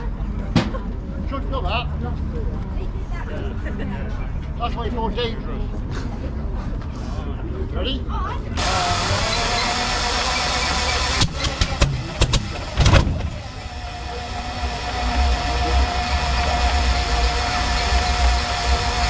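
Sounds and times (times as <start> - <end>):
engine cranking: 8.6 - 19.0
engine firing bangs: 8.6 - 19.0.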